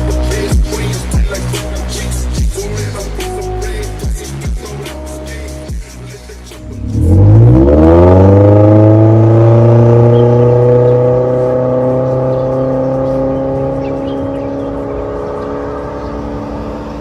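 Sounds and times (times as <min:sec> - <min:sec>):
car engine revving: 0:00.0 - 0:17.0
music playing: 0:00.0 - 0:17.0.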